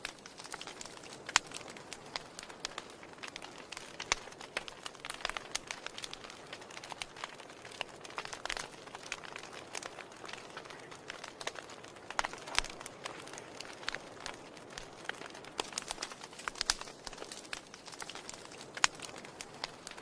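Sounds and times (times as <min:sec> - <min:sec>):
soft hiss of burning: 0:00.0 - 0:20.0
wood fire snaps and pops: 0:00.0 - 0:20.0.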